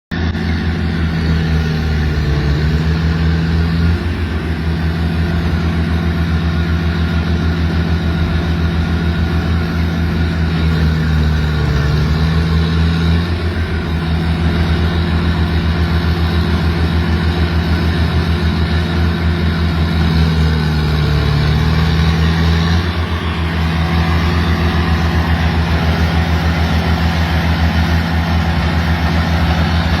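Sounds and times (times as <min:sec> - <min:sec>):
machine engine running: 0:00.1 - 0:30.0.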